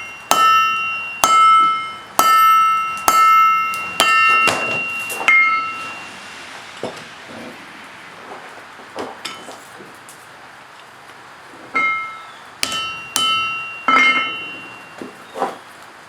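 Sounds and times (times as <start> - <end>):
hammer striking metal anvil: 0.0 - 7.1, 9.2 - 9.6, 11.8 - 15.2.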